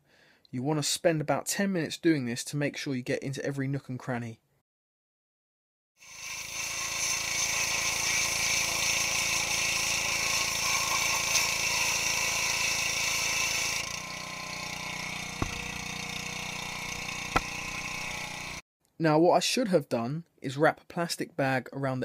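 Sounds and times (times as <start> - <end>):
pressure washer running: 6.8 - 18.6.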